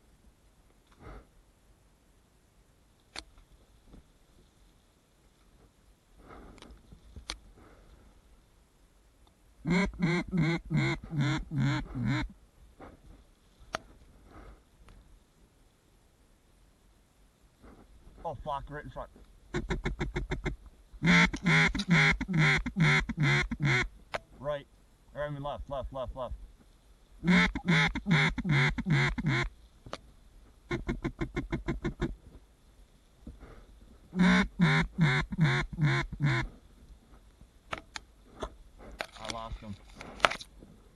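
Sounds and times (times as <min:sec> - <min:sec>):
sharp click: 0:03.1 - 0:03.4
duck quacks: 0:09.6 - 0:12.3, 0:19.5 - 0:23.9, 0:27.2 - 0:29.5, 0:34.2 - 0:36.5.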